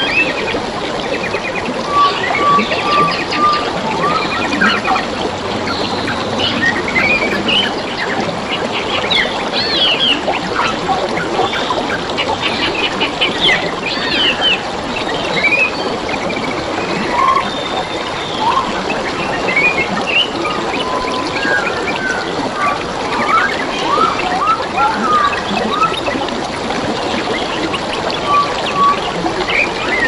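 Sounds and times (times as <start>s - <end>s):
trickling flowing water: 0.0s - 30.0s
birds chirping and twittering: 1.1s - 22.2s.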